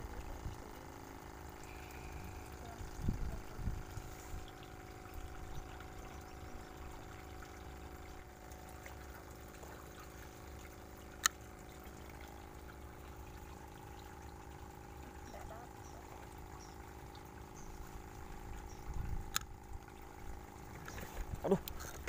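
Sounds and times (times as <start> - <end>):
faint steady hum: 0.0 - 22.0
trickle of flowing water: 0.0 - 22.0.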